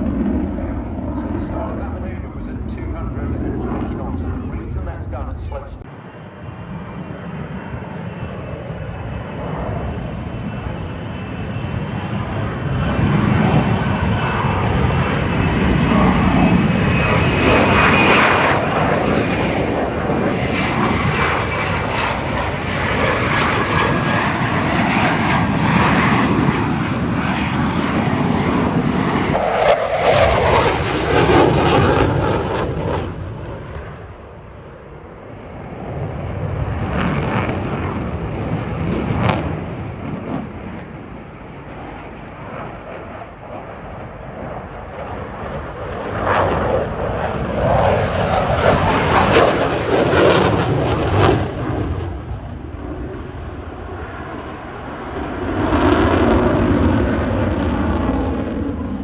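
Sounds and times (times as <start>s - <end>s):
fighter jet engine roar: 0.0s - 59.0s.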